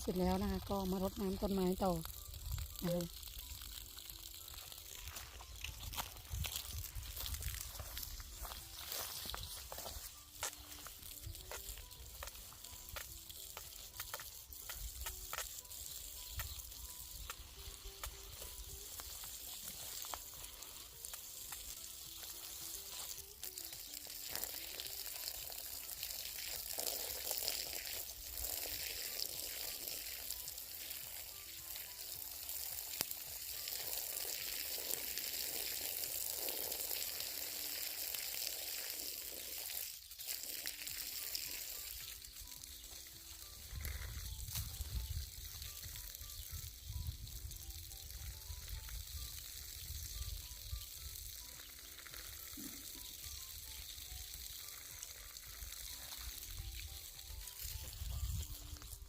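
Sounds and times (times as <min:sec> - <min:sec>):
faint background music: 0:00.0 - 0:59.0
hose spraying water: 0:00.0 - 0:59.0
wind rumbling on microphone: 0:05.8 - 0:08.2, 0:43.6 - 0:50.4, 0:57.6 - 0:59.0.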